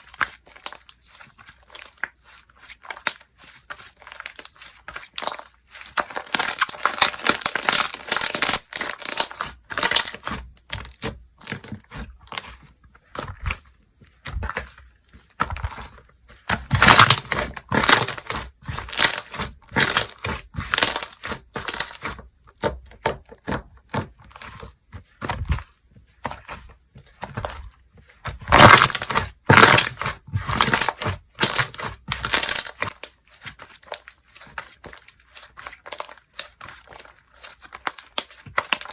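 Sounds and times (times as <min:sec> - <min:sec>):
slime squishing and crackling: 0:00.0 - 0:38.9.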